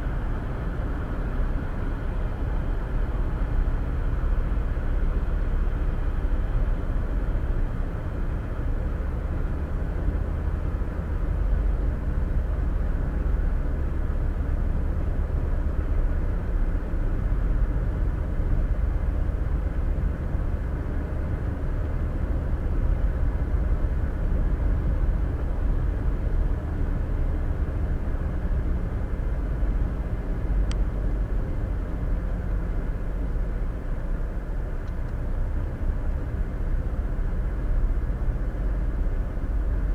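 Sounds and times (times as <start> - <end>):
road and tyre noise: 0.0 - 39.9.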